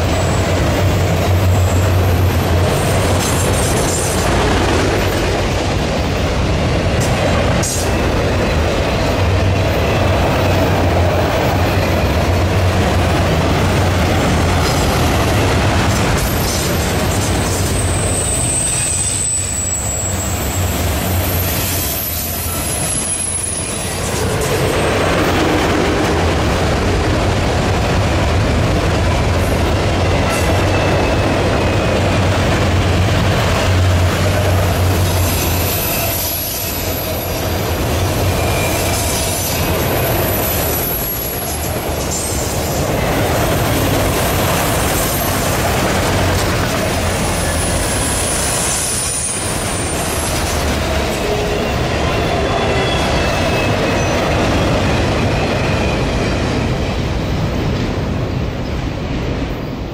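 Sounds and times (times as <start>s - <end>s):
train wheels rolling on rail: 0.0s - 59.9s
high-pitched wheel squeal: 17.7s - 24.0s, 35.1s - 37.4s, 38.3s - 41.6s.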